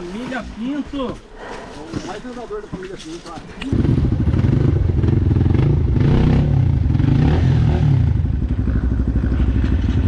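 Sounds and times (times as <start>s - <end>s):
dirt bike engine revving: 3.8s - 10.0s.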